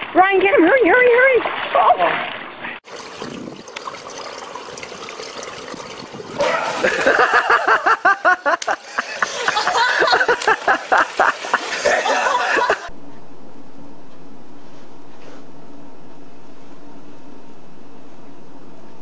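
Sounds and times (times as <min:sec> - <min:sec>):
person laughing hard: 0:06.4 - 0:12.9.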